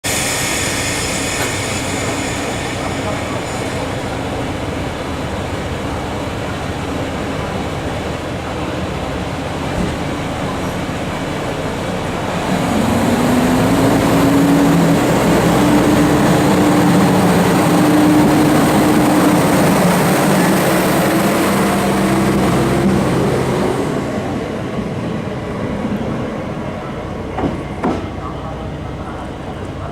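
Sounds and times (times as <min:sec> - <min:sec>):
diesel railcar engine revving: 0:00.1 - 0:29.9.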